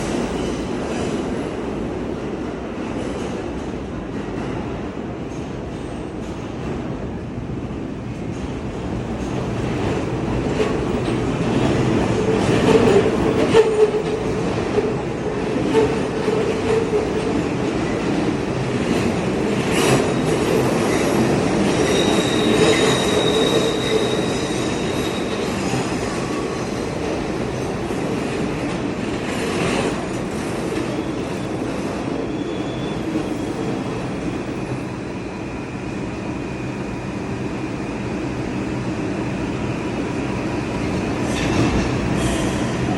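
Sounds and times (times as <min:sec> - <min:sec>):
train wheels rumbling on rail: 0:00.0 - 0:42.9
high-pitched wheel squeal: 0:21.8 - 0:25.6.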